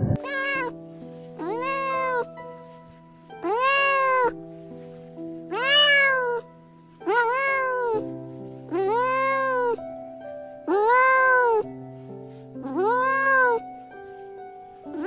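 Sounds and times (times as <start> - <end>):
background music with held notes: 0.0 - 15.0
cat meowing: 0.2 - 0.8, 1.4 - 2.4, 3.4 - 4.4, 5.5 - 8.1, 8.7 - 9.8, 10.7 - 11.7, 12.6 - 13.6.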